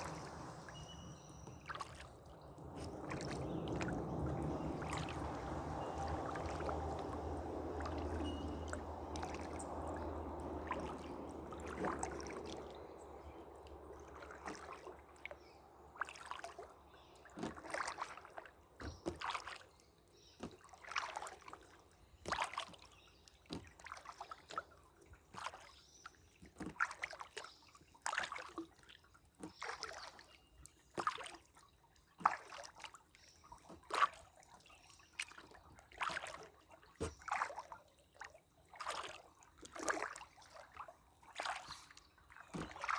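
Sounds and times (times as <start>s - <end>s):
rushing noise with low hum: 0.0s - 13.3s
water dripping: 0.0s - 19.6s, 38.8s - 42.9s
paddle strokes in water: 0.0s - 42.9s.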